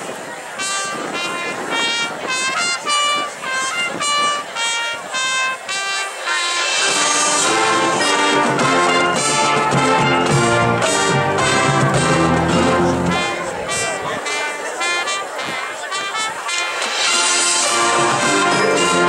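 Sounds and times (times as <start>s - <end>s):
marching band playing: 0.6s - 19.0s.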